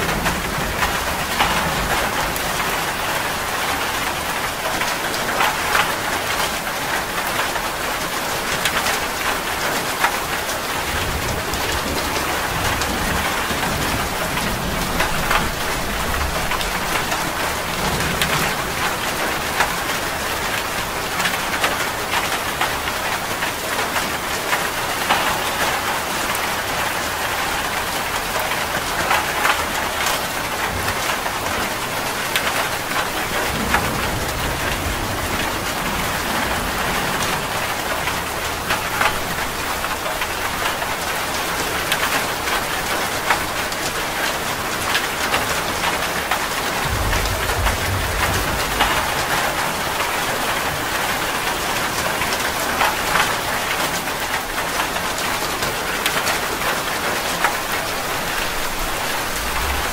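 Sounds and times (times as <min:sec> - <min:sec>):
rain splashing on a surface: 0:00.0 - 0:59.9
low rumble: 0:46.6 - 0:50.7, 0:58.2 - 0:59.9.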